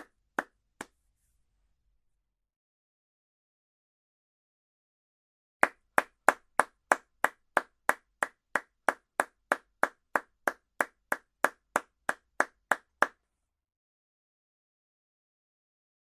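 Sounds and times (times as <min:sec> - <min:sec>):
hands clapping: 0:00.0 - 0:01.0, 0:05.6 - 0:13.2.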